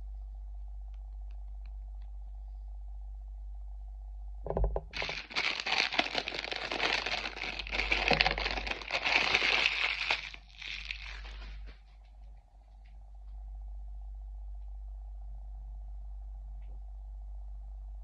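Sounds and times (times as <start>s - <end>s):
plastic packaging crinkling and tearing: 4.9s - 11.8s.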